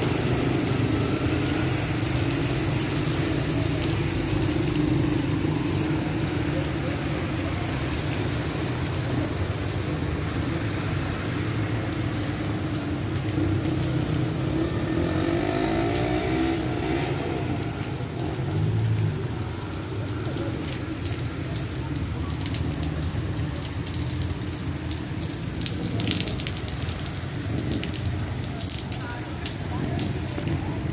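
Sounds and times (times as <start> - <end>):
heavy rain falling: 0.0 - 30.9
vehicle engine passing: 13.2 - 21.7.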